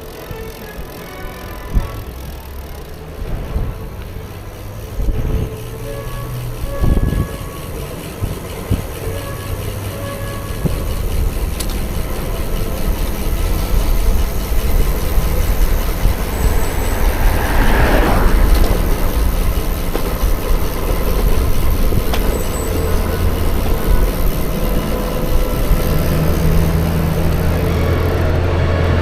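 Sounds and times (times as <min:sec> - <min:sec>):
wind rushing over microphone: 0:12.9 - 0:22.3.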